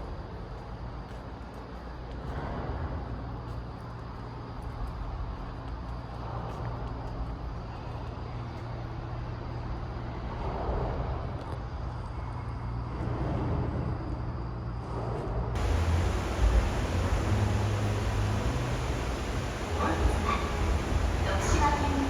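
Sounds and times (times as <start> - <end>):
hiss: 15.6 - 22.0
low rumbling noise: 15.6 - 22.0.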